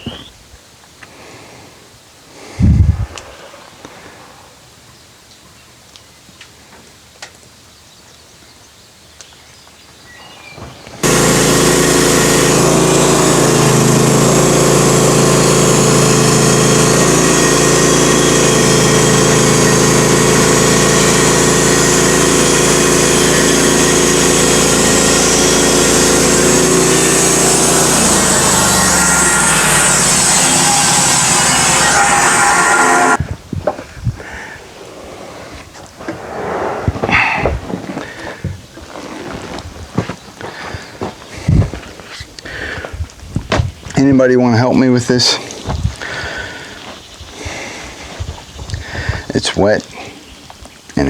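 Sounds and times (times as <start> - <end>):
sawmill engine running loud: 10.9 - 33.2, 44.8 - 49.9.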